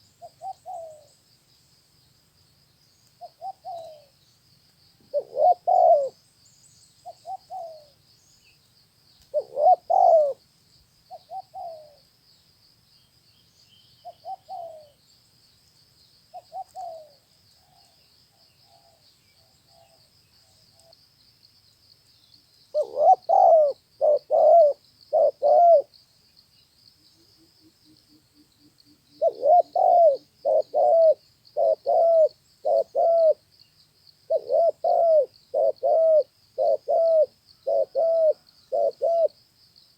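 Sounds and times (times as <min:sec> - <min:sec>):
dove cooing: 0:00.0 - 0:01.1, 0:03.2 - 0:04.1, 0:05.0 - 0:06.2, 0:07.0 - 0:08.0, 0:09.3 - 0:10.4, 0:11.1 - 0:12.0, 0:14.0 - 0:15.0, 0:16.4 - 0:18.0, 0:22.7 - 0:25.9, 0:29.2 - 0:33.4, 0:34.3 - 0:39.4.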